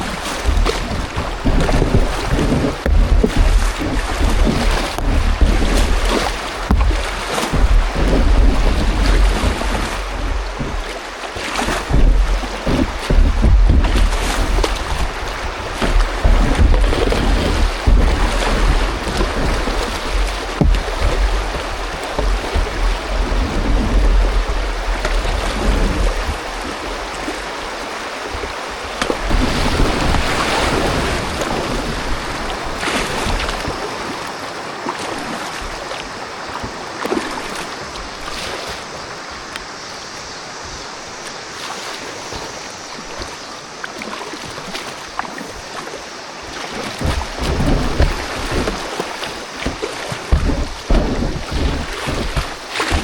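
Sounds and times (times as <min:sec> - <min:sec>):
wind buffeting microphone: 0:00.0 - 0:34.2, 0:46.9 - 0:53.0
rushing river water: 0:00.0 - 0:53.0
water splashes: 0:00.0 - 0:53.0.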